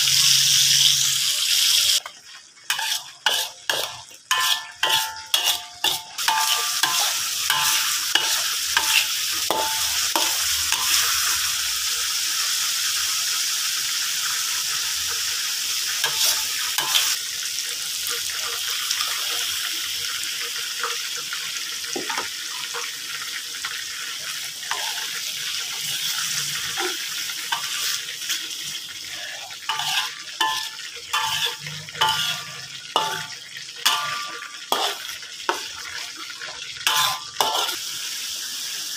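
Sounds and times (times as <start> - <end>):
paste sizzling in oil: 0.0 - 38.9
metal spoon scraping a pan: 2.7 - 11.6, 16.0 - 17.2, 24.3 - 37.9
liquid poured into wok: 29.2 - 38.0.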